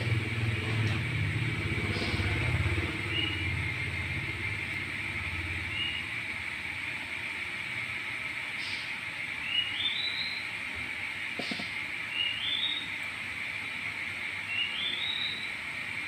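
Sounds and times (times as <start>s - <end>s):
small engine running: 0.0s - 16.0s
high-pitched drone: 1.2s - 6.2s.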